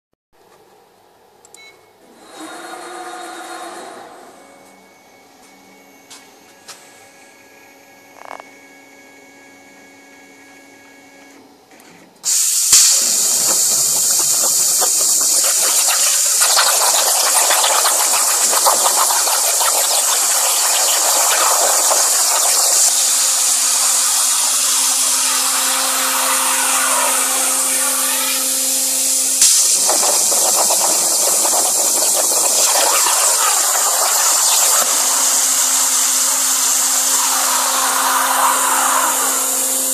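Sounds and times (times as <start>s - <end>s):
plasma cutter hissing: 12.2s - 39.9s
faint hum: 12.7s - 39.9s.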